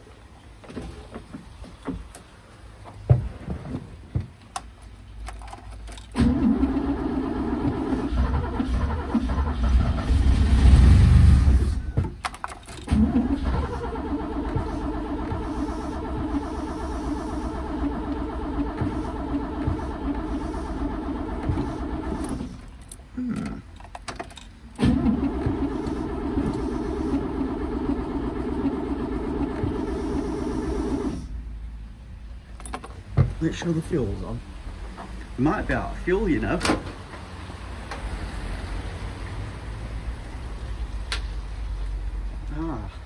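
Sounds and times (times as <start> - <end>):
car engine starting and revving: 6.0 - 12.0, 12.8 - 23.6, 24.7 - 32.4, 33.0 - 42.8.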